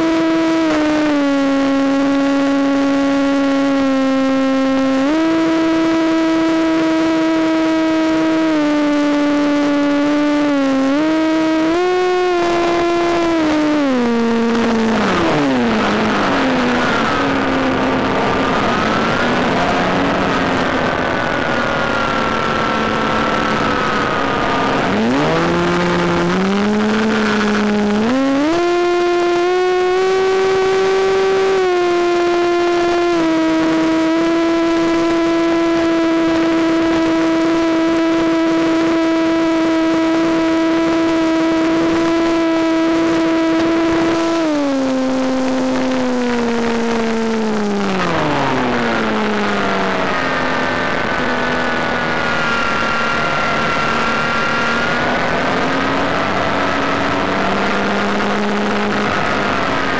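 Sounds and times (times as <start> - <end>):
model plane motor whining: 0.0 - 59.9.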